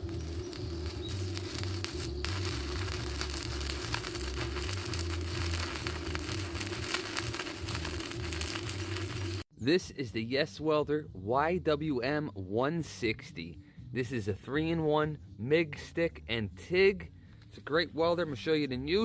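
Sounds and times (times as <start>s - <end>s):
low hum: 0.0s - 9.4s
welding arc crackling: 0.0s - 9.5s.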